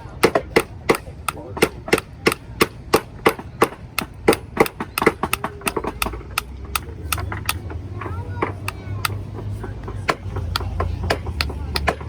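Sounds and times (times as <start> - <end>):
hammer tapping nail into wood: 0.1 - 7.8, 10.1 - 12.0.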